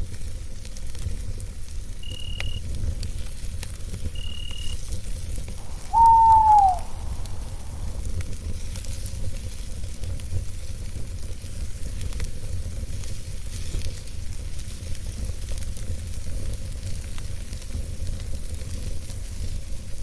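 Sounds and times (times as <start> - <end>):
campfire crackling: 0.2 - 20.0
owl call: 5.6 - 8.1
low rumble: 6.8 - 8.2.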